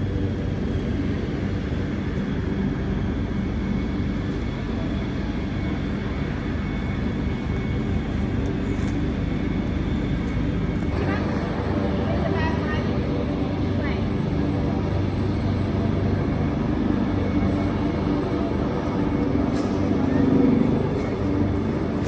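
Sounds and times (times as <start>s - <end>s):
aircraft engine drone: 0.0s - 22.0s.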